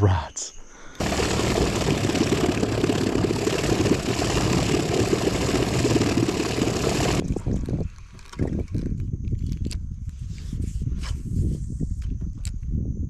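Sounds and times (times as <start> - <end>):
outboard motor running: 1.0 - 7.2.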